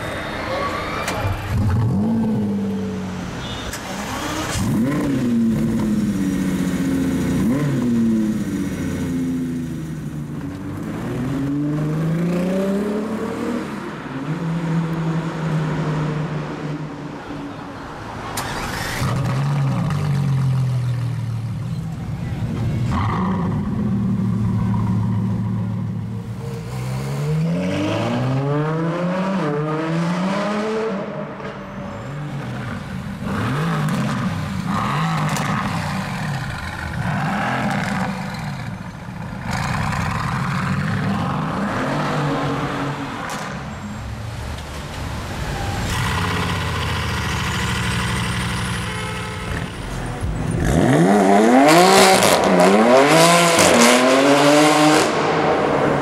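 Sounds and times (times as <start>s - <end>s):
sports car engines accelerating: 18.4s - 56.0s.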